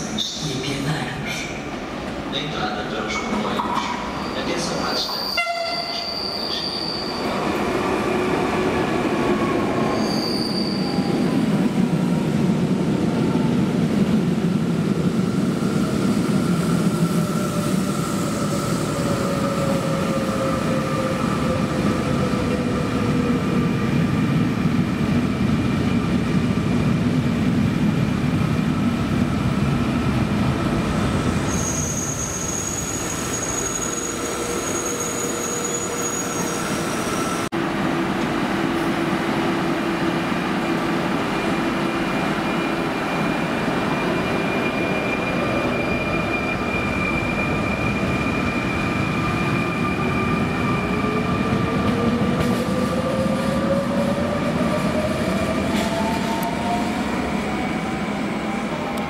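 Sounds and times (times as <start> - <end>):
train wheels rumbling on rail: 7.2 - 59.0
brake squeal: 31.5 - 37.4.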